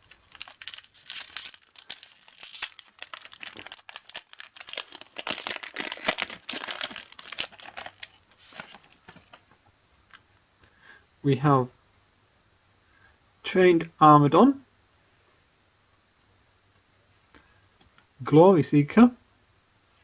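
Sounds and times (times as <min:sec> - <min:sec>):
wrapper torn and crinkled: 0:00.0 - 0:09.4.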